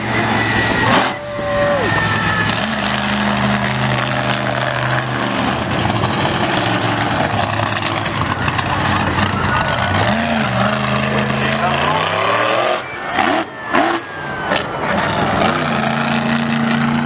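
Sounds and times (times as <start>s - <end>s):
vehicle engine idling: 0.0s - 12.2s
engine revving: 0.0s - 17.0s.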